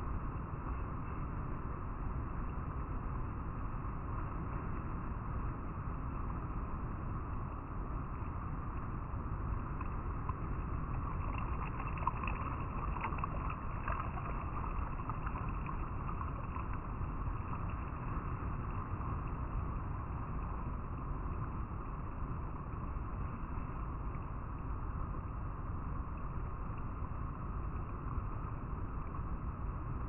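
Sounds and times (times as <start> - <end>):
river water rippling over rocks: 8.8 - 24.3.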